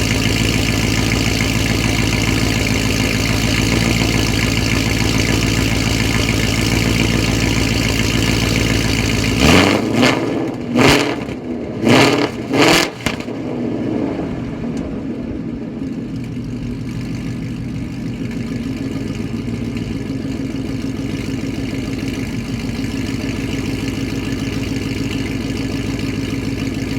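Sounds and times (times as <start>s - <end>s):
car engine idling: 0.0s - 26.9s.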